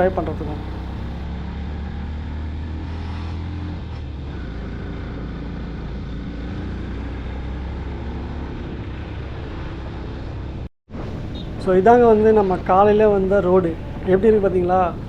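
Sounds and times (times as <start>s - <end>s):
motorcycle engine running: 0.0s - 2.7s
wind and road noise: 0.0s - 15.0s.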